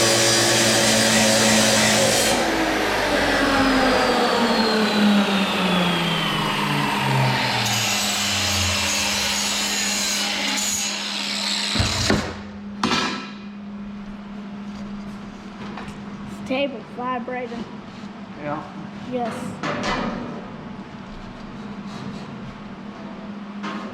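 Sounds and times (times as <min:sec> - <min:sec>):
power saw winding down: 0:00.0 - 0:12.1.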